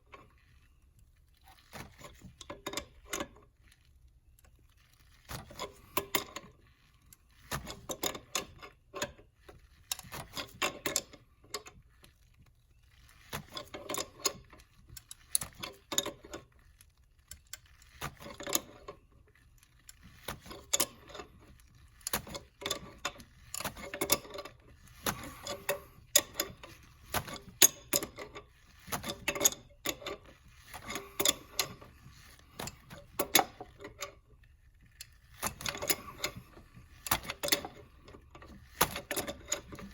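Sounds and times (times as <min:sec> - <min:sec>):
metal hand tools clicking and clattering: 0:22.1 - 0:34.1.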